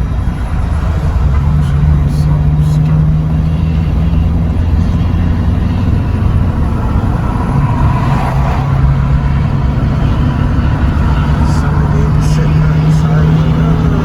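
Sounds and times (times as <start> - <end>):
road noise: 0.0 - 14.0
truck engine droning: 0.0 - 14.0.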